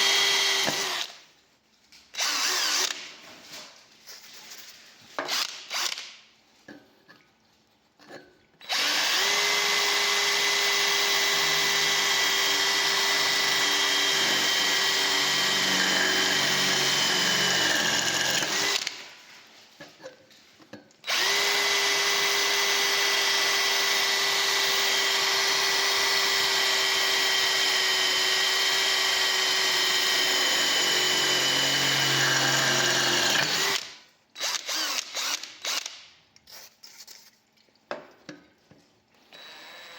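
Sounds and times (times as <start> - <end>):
cordless drill motor whining: 0.0 - 1.1, 8.7 - 18.9, 21.1 - 35.9, 39.3 - 39.9.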